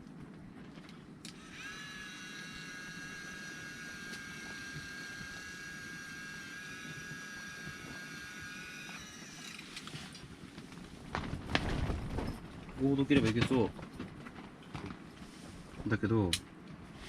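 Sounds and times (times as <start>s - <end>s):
electric reel motor whining: 1.2s - 10.2s.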